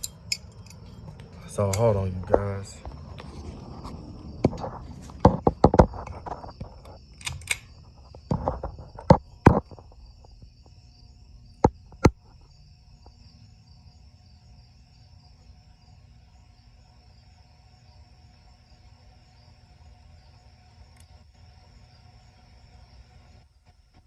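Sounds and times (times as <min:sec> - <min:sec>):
ceiling fan clicks and knocks: 0:00.0 - 0:10.7
fan motor humming: 0:00.0 - 0:23.8.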